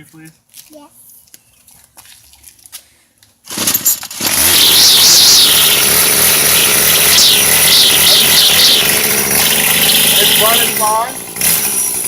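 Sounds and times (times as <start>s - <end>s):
string trimmer engine running: 3.5s - 12.0s.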